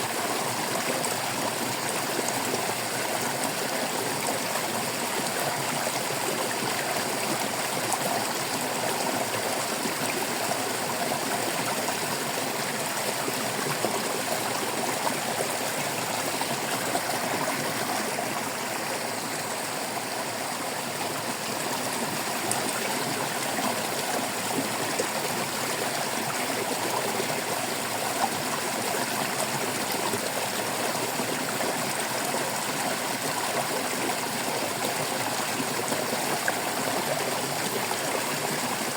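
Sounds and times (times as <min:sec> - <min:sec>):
stream babbling over rocks: 0:00.0 - 0:38.9.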